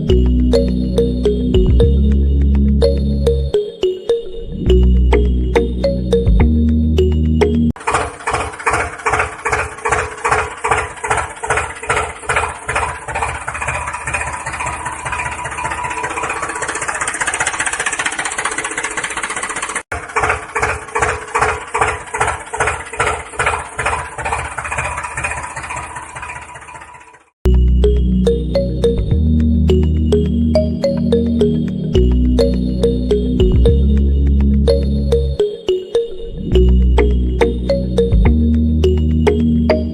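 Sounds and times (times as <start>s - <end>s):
tractor engine chugging: 7.8s - 30.7s.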